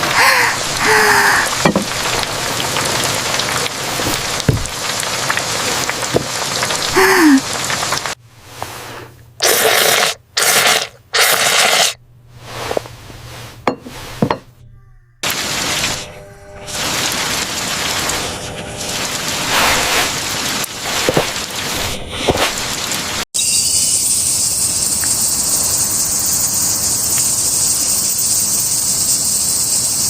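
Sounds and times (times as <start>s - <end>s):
steady rain: 0.0s - 8.2s, 15.2s - 23.2s.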